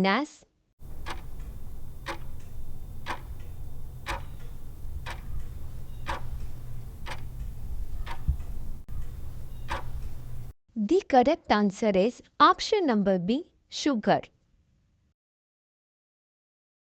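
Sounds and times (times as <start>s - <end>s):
clock ticking: 0.8s - 10.5s
low steady hum: 0.8s - 10.5s.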